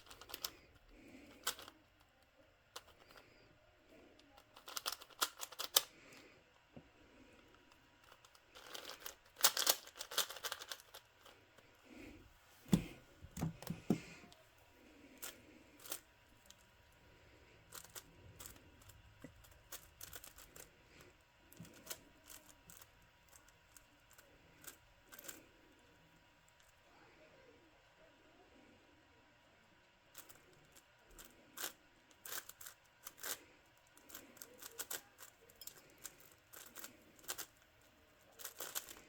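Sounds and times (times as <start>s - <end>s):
plastic puzzle cube clicking: 0.0s - 0.6s, 1.2s - 1.8s, 4.3s - 5.9s, 8.0s - 11.3s, 21.5s - 25.4s, 34.0s - 37.5s, 38.4s - 39.0s.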